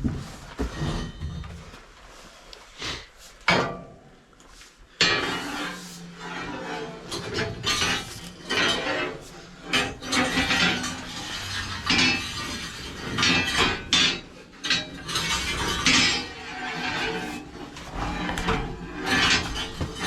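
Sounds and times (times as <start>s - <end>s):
hard objects knocking and clattering: 17.8s - 20.0s.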